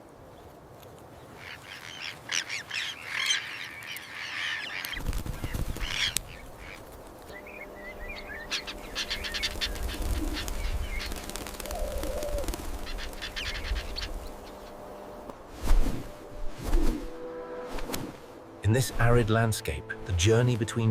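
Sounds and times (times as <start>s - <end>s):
birds chattering: 1.2s - 15.3s
faint steady hum: 5.4s - 20.2s.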